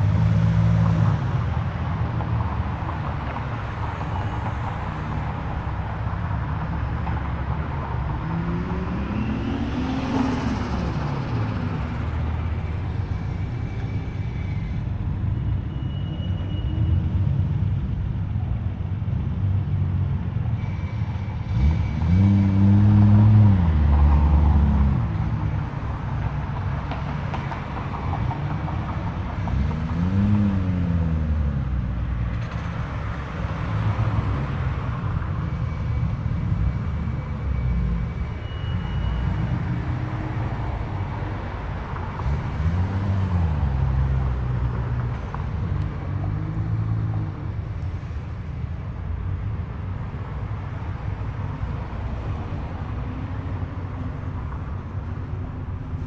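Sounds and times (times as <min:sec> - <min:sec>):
engine throttle revs: 0:21.5 - 0:25.1.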